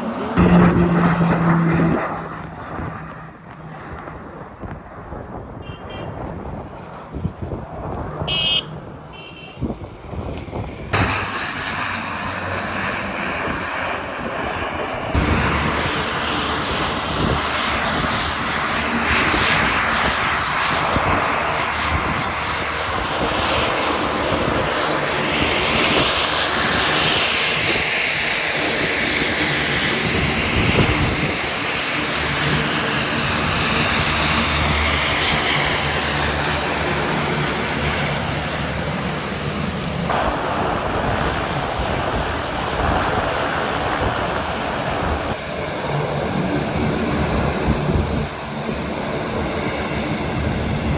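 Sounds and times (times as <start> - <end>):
propeller airplane engines droning: 0.0 - 50.9.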